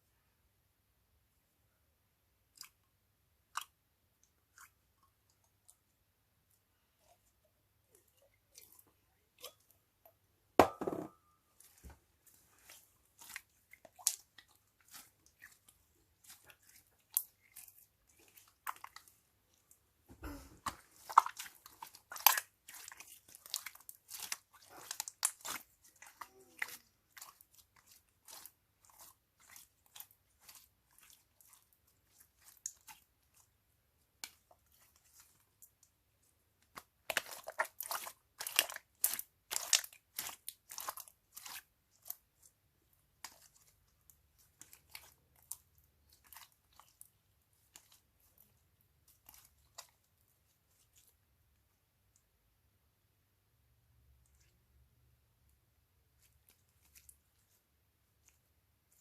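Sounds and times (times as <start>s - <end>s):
slime crackling and crunching: 20.2s - 33.4s, 36.7s - 42.5s.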